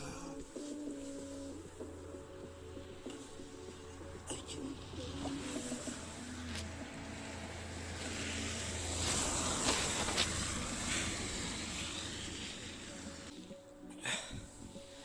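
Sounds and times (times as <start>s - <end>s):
vehicle passing: 1.1s - 13.8s.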